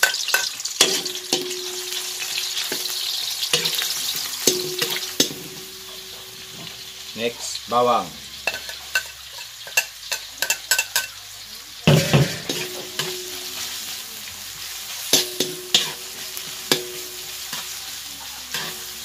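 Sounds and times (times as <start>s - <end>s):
onions and garlic sizzling: 0.0s - 19.0s
ladle scraping a pan: 11.9s - 13.8s, 18.4s - 19.0s.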